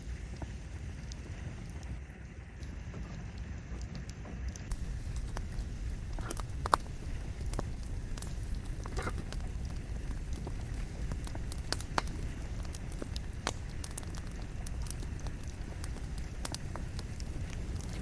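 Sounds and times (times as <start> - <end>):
burning logs crackling: 0.0 - 18.0
fire flame rumble: 0.0 - 18.0.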